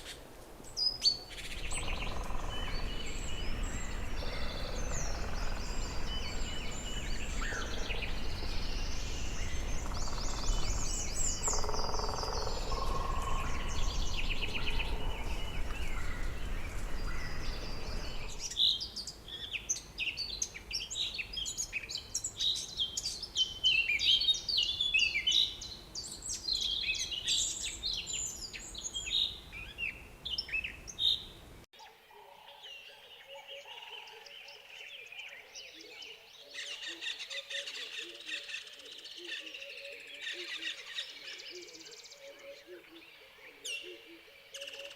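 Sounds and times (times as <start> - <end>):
birds calling and chirping: 0.0 - 31.4
whistled bird notes: 1.0 - 18.6
low rumble: 1.5 - 11.8, 12.4 - 18.5.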